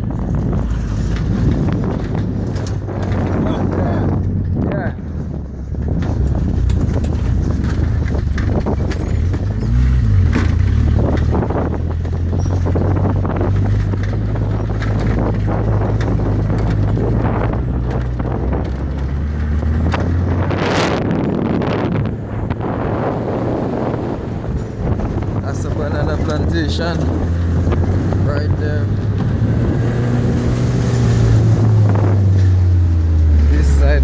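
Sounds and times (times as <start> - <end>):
knocks and rattles: 0.0 - 20.6
vehicle engine running: 0.0 - 20.9
road noise: 0.0 - 34.0.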